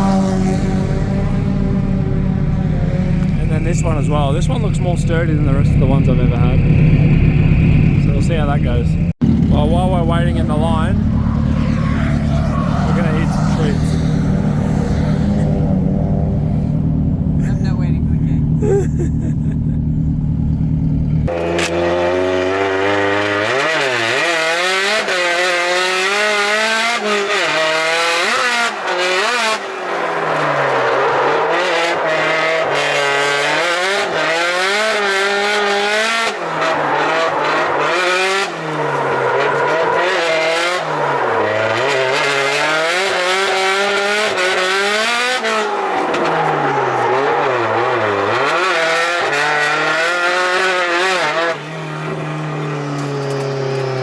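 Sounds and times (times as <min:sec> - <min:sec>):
car engine revving: 0:00.0 - 0:54.0
tyre squeal: 0:11.0 - 0:15.7.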